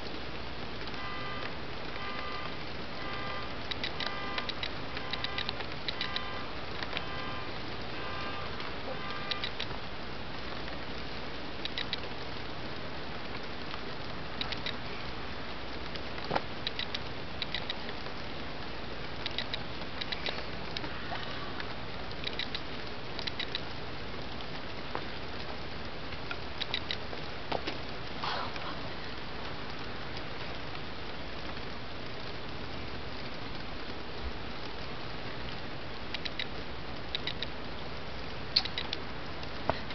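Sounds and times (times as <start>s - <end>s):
steady rain hiss: 0.0s - 39.9s
sharp ticks: 0.8s - 8.0s, 8.6s - 9.8s, 11.6s - 12.1s, 13.3s - 14.8s, 16.6s - 18.1s, 19.2s - 20.9s, 21.6s - 23.8s, 26.1s - 27.1s, 36.1s - 37.6s, 38.2s - 39.9s.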